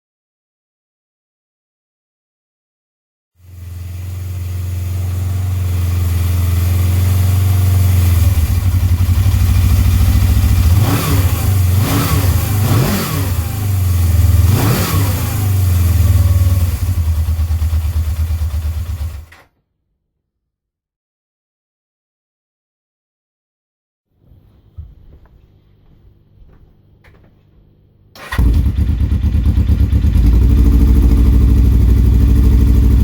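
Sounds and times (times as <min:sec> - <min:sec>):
motorcycle engine idling and revving: 0:03.4 - 0:19.4, 0:28.2 - 0:33.0.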